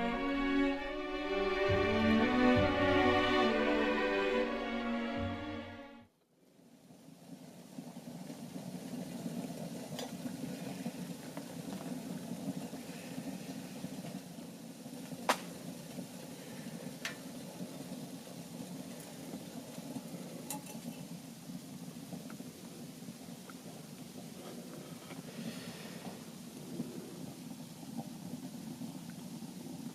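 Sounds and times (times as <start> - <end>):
fire rushing in stove: 7.2 - 29.9.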